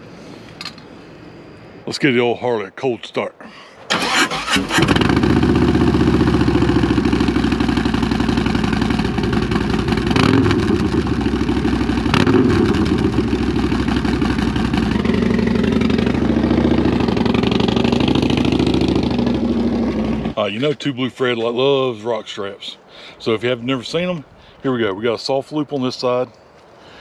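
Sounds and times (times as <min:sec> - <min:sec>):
motorcycle engine idling: 0:04.0 - 0:20.4.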